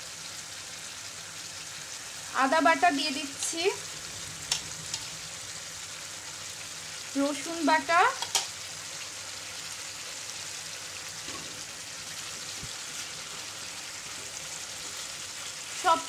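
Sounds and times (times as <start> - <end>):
food sizzling in frying pan: 0.0 - 16.0.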